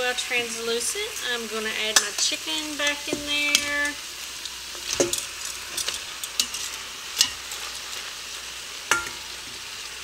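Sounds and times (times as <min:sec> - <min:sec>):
onions and mushrooms sizzling: 0:00.0 - 0:10.0
metal tongs clinking: 0:04.8 - 0:08.1, 0:08.9 - 0:09.3.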